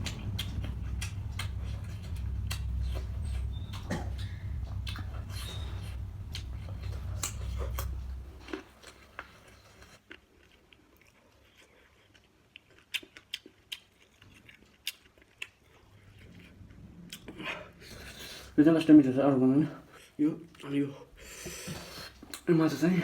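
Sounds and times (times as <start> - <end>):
low rumble with clicks: 0.0 - 8.6, 15.8 - 18.6
person chewing food: 0.0 - 18.5.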